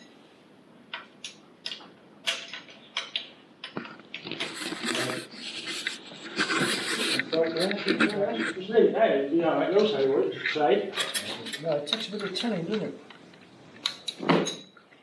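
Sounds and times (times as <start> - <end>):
scraping and rustling: 3.7 - 8.7.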